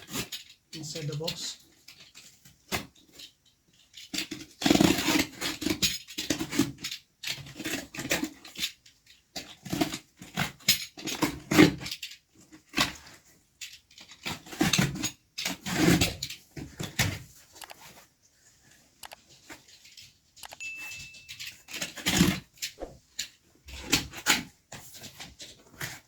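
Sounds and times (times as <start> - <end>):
cardboard scraping and rustling: 23.7 - 26.0.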